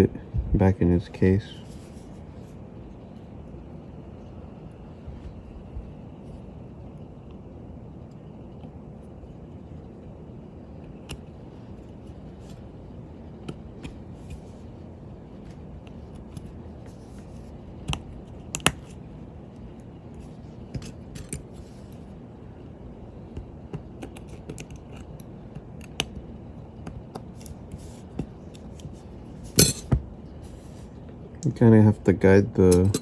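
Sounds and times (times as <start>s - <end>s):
low background hum: 0.0s - 33.0s
small parts clicking and tapping: 23.7s - 26.1s.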